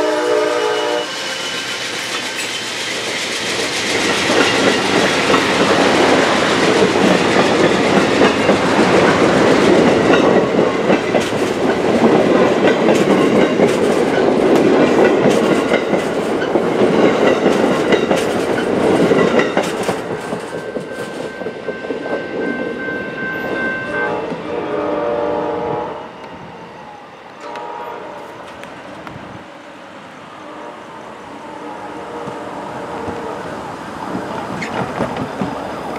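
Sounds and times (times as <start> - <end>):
distant train horn: 0.0 - 1.8, 20.2 - 28.8, 30.2 - 34.7
train cars rolling past: 0.0 - 35.9
wheels clicking over rail joints: 1.9 - 22.6, 33.9 - 35.9.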